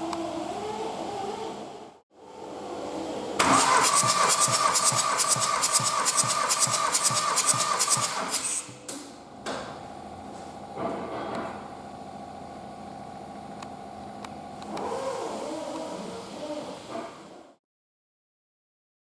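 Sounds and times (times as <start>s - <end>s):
diesel engine cranking on starter: 3.4s - 8.7s.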